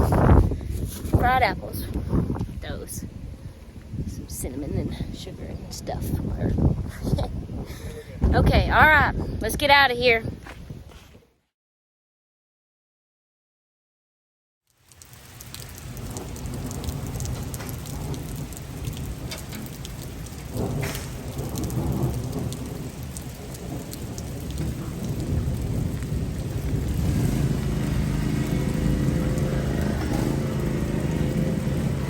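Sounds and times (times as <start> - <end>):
heavy rain pouring: 14.8 - 32.0
thunder rumbling: 15.3 - 32.0.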